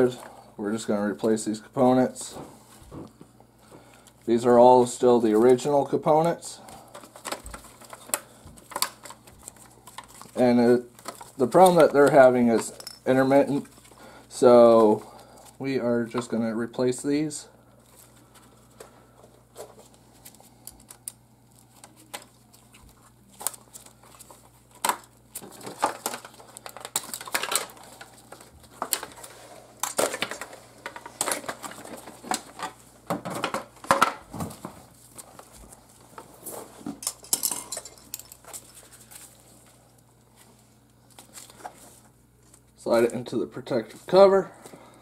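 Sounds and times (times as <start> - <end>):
clicks and rattles of small parts: 6.9 - 10.4, 23.4 - 34.2, 37.0 - 39.2.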